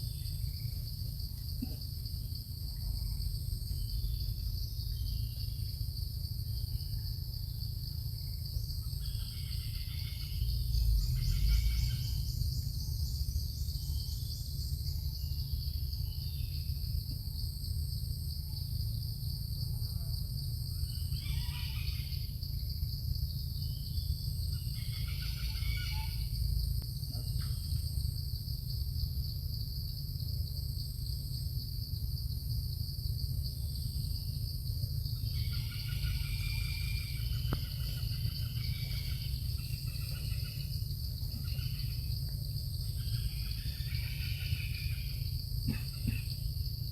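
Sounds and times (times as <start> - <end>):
high-pitched insect drone: 0.0 - 46.9.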